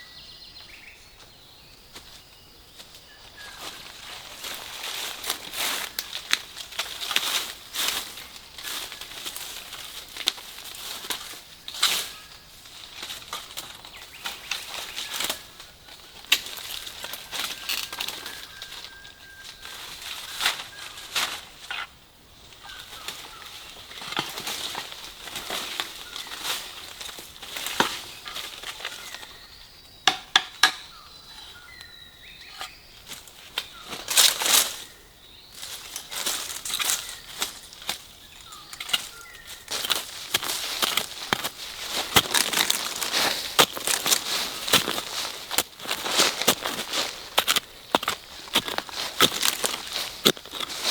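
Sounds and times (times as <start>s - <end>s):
dry leaves rustling and crunching: 3.0s - 21.8s, 22.4s - 29.5s, 33.0s - 50.9s
twigs snapping: 4.4s - 12.1s, 16.2s - 18.7s, 35.6s - 50.9s.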